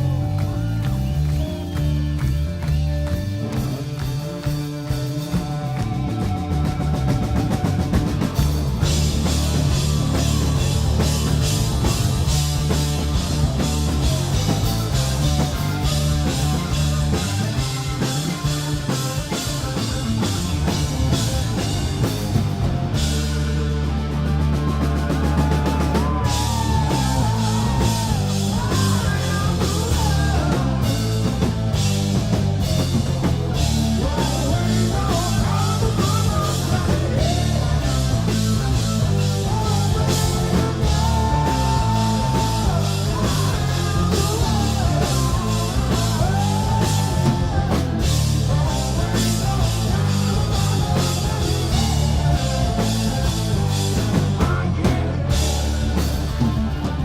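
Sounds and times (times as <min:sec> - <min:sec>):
live rock band playing: 0:00.0 - 0:57.0
person singing: 0:24.0 - 0:31.6, 0:32.8 - 0:57.0.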